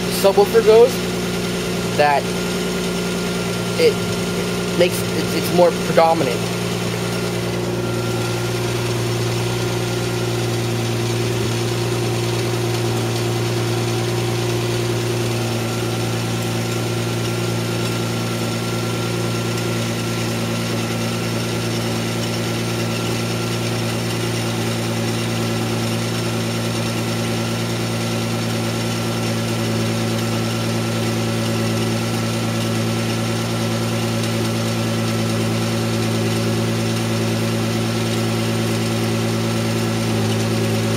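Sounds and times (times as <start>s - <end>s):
car engine idling: 0.0s - 40.9s
car stereo music: 1.9s - 2.2s.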